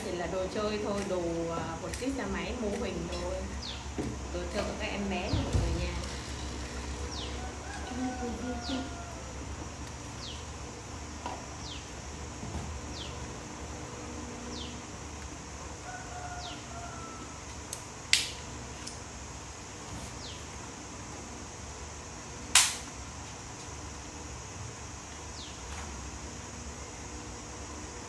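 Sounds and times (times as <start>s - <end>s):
birds chirping: 3.1s - 9.1s, 12.8s - 13.3s
sharp clicks: 17.7s - 19.0s, 22.5s - 22.9s.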